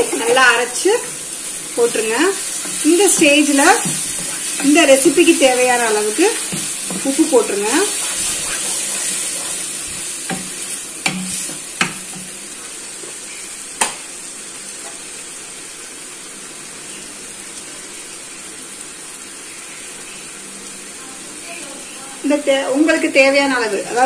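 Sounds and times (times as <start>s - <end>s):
paste sizzling in a pan: 0.0s - 24.0s
spatula knocking against pan: 10.3s - 12.3s.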